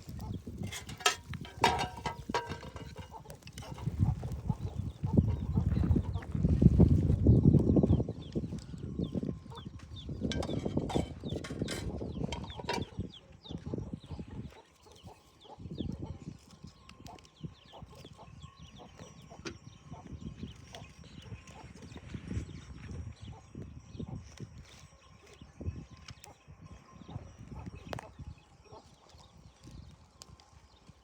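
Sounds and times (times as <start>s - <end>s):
small birds chirping: 0.0s - 31.0s
rustling and knocking: 0.6s - 3.9s.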